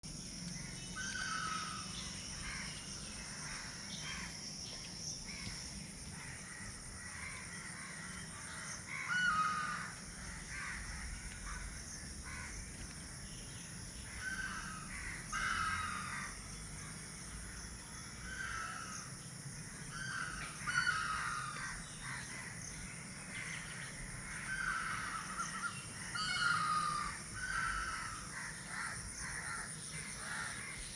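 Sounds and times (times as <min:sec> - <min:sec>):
bird calling: 0:00.5 - 0:06.7, 0:07.3 - 0:10.8, 0:19.9 - 0:22.8, 0:24.5 - 0:30.9.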